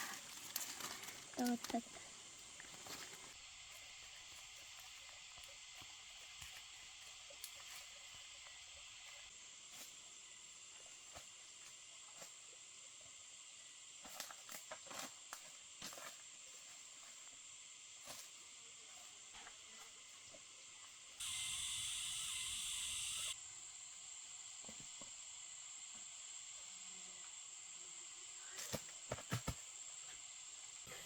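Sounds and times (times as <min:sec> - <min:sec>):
high-pitched hiss: 0:20.8 - 0:31.0.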